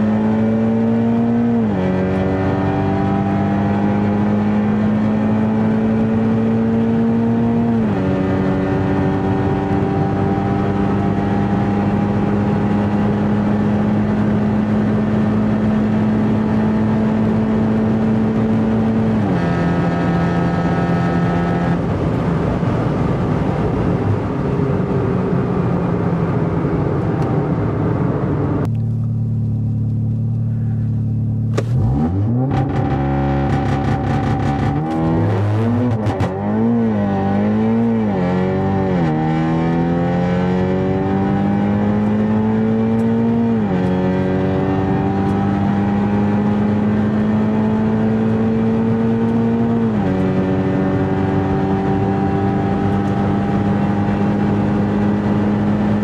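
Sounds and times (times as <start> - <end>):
car engine accelerating: 0.0 - 56.0
engine idling hum: 28.4 - 31.7.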